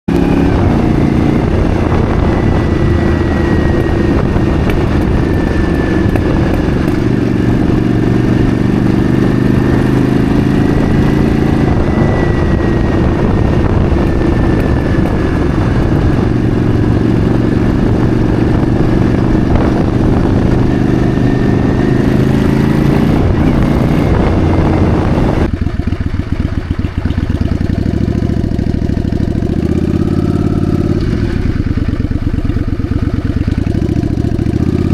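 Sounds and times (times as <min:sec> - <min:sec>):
rush of noise: 0:00.1 - 0:25.5
motorcycle engine running: 0:00.1 - 0:34.9.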